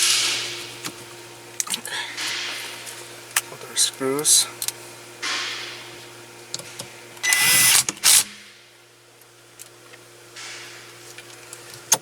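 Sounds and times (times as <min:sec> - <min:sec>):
cordless screwdriver running: 0:07.2 - 0:08.3.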